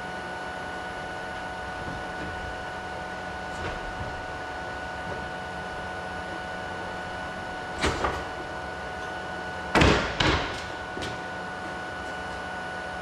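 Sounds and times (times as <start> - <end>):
machine hum: 0.0 - 13.0
knocks: 9.8 - 11.1.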